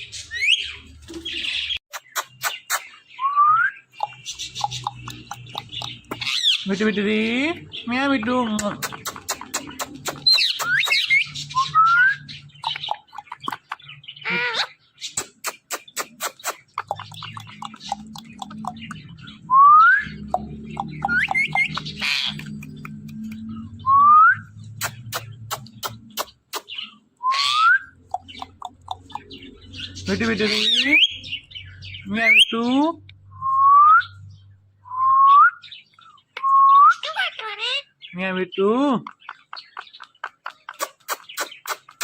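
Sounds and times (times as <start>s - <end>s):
parrot squeaky chirps: 0.0s - 6.9s, 8.6s - 19.0s, 20.0s - 23.8s, 24.4s - 32.6s, 36.4s - 38.1s, 39.0s - 42.0s
parrot clicks: 4.0s - 6.3s.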